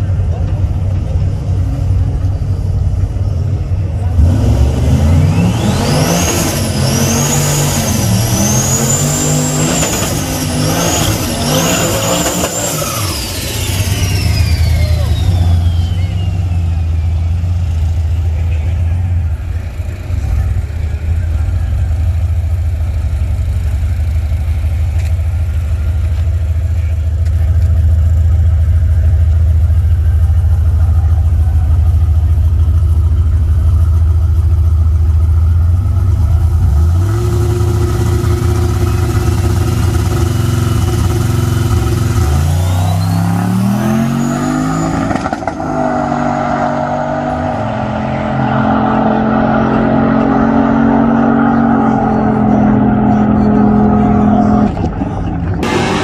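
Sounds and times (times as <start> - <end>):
truck engine accelerating: 0.0 - 56.0
high whine: 37.0 - 56.0.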